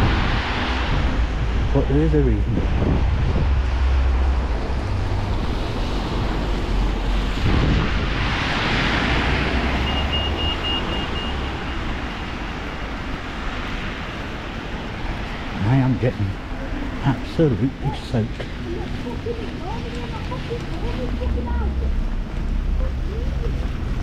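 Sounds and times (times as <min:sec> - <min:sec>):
heavy rain hissing: 0:00.0 - 0:24.0
wind buffeting microphone: 0:00.0 - 0:24.0
high beeps: 0:09.8 - 0:11.9.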